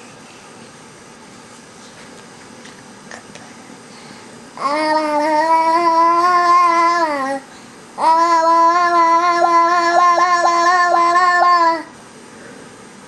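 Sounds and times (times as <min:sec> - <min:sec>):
baby singing long notes: 0:04.6 - 0:07.4, 0:08.0 - 0:12.0.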